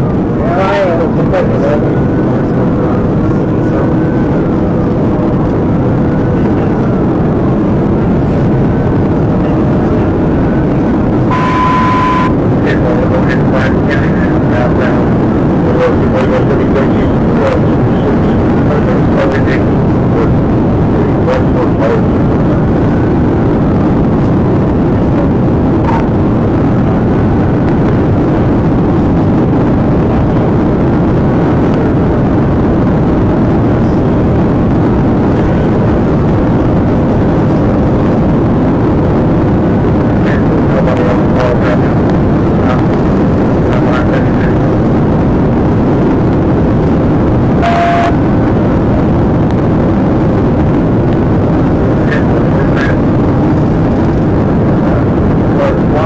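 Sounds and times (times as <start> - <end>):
car engine tyre and wind noise: 0.0 - 56.0
faint rising and falling tone: 11.1 - 12.7.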